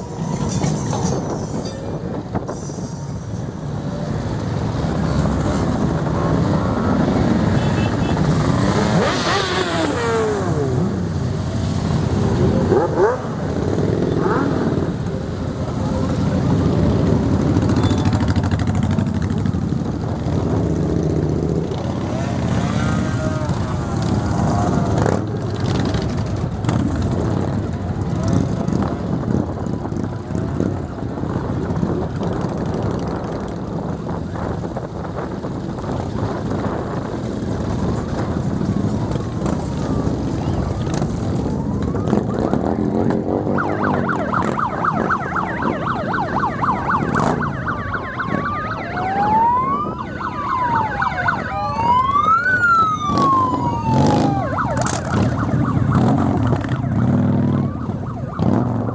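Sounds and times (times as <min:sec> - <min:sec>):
motorcycle engines running: 0:00.0 - 0:58.9
faint wailing siren: 0:03.0 - 0:18.4, 0:19.8 - 0:26.8, 0:35.9 - 0:58.9.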